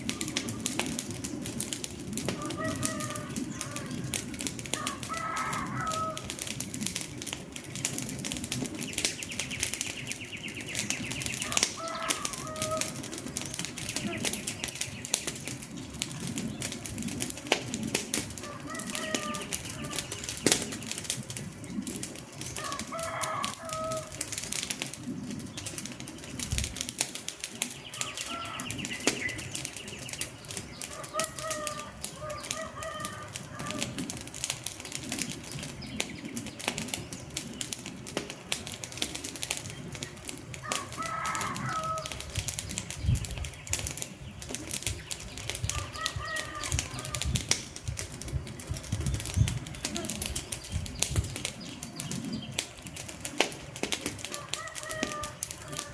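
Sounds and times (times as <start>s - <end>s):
wood fire crackling: 0.0s - 55.9s
short bird calls: 27.8s - 30.1s, 45.7s - 47.3s.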